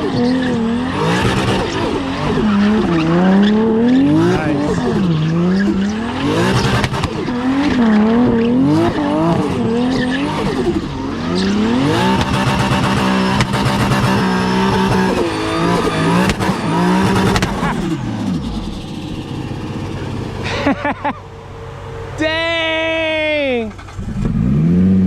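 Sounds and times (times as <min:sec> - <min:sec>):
tyre squeal: 0:00.0 - 0:18.0
car engine revving hard: 0:00.0 - 0:20.9, 0:24.0 - 0:25.0
sharp cracks: 0:06.3 - 0:08.0, 0:11.4 - 0:17.9.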